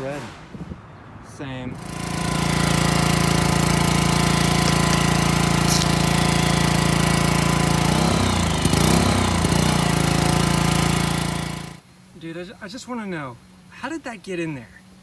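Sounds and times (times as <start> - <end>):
pressure washer drone: 1.7 - 11.8.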